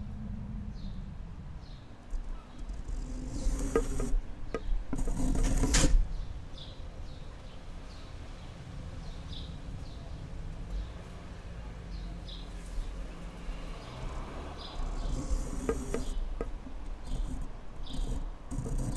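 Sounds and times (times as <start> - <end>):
low wind rumble: 0.0 - 12.2.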